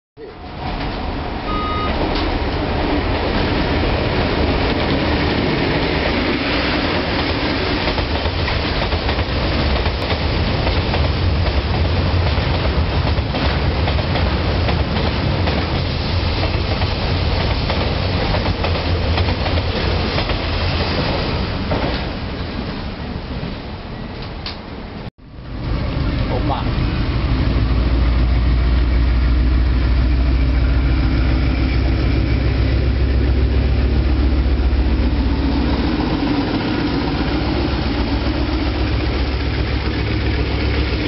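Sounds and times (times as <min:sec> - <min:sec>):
locomotive engine rumble: 0:25.4 - 0:41.0.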